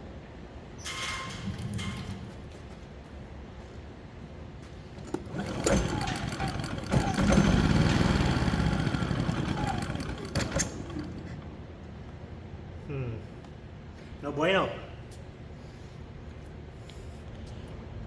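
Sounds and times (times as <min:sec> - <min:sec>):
generator engine running: 0:05.0 - 0:12.1.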